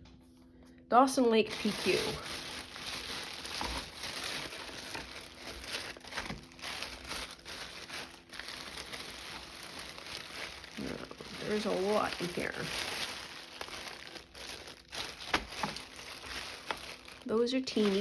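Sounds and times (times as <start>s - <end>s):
packaging crinkling and rustling: 1.3s - 18.0s.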